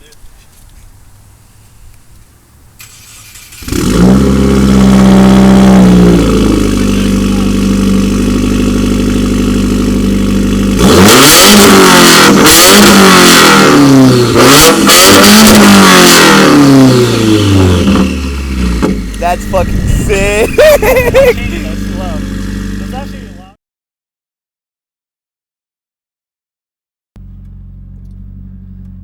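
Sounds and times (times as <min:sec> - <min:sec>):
loud raspy car engine revving: 0:02.9 - 0:23.5.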